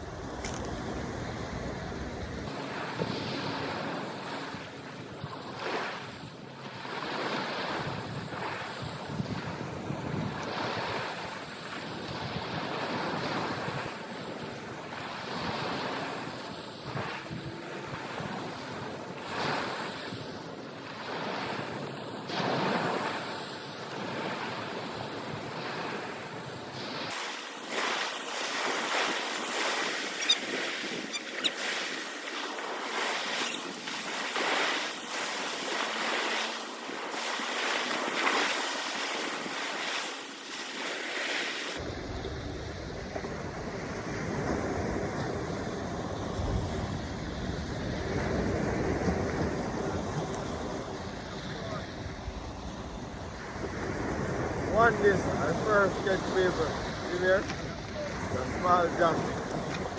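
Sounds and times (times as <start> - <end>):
wind buffeting microphone: 0.0 - 6.4, 7.6 - 21.9, 41.8 - 59.9
waves washing: 0.0 - 59.9.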